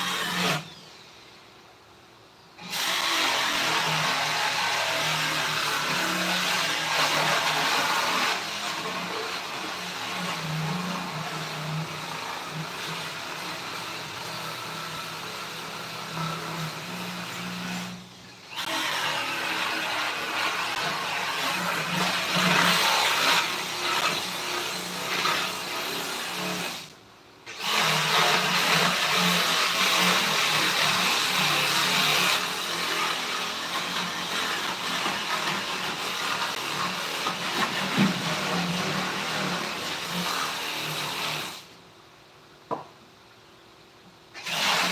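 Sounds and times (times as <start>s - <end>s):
electric power tool hissing: 0.0s - 1.4s.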